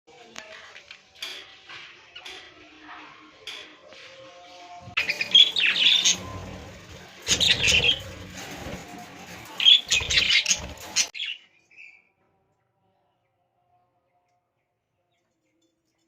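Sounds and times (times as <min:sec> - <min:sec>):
budgerigars chirping: 0:05.0 - 0:06.6, 0:07.3 - 0:08.1, 0:09.6 - 0:11.4.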